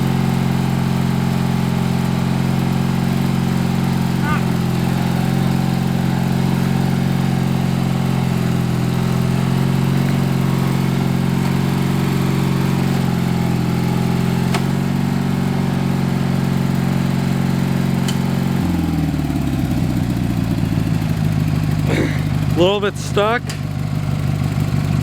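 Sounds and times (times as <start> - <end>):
lawn tractor engine running: 0.0 - 25.0.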